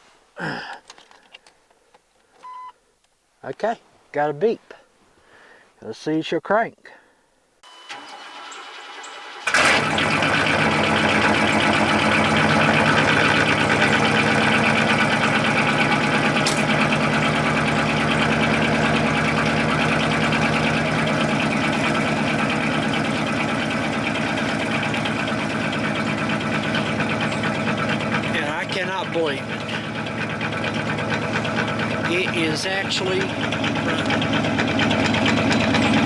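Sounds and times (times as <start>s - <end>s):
pickup engine starting and running: 7.7s - 36.0s.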